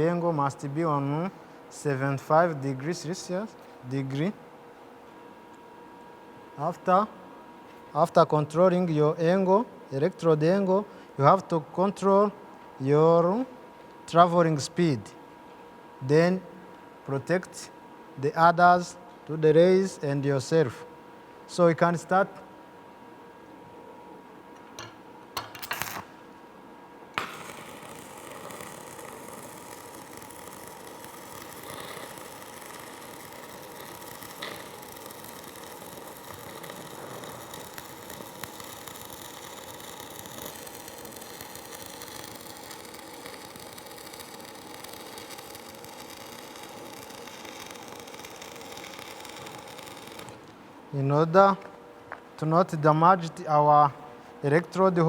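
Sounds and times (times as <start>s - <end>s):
welding arc striking click: 24.8s - 26.1s, 27.2s - 50.6s
welding arc crackling: 27.2s - 50.6s.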